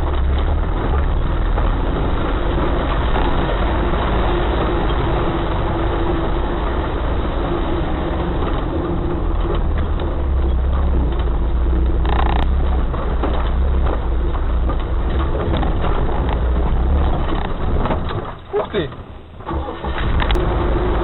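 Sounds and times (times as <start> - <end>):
knocks and rattles: 0.0 - 20.5
vehicle engine rumbling: 0.0 - 21.0.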